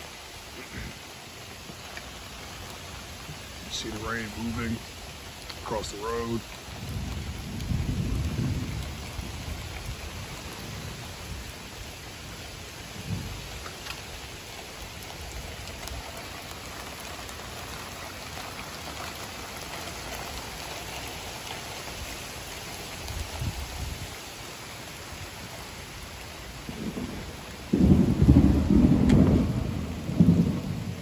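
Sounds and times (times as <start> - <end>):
heavy rain on pavement: 0.0 - 31.0
low thunder rumble: 5.6 - 11.8, 12.9 - 13.6, 26.5 - 31.0.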